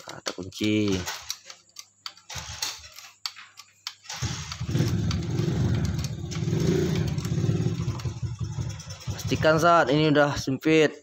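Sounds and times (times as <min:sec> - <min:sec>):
hand tools clicking: 0:00.0 - 0:09.6
motorcycle engine rumbling: 0:04.2 - 0:10.1.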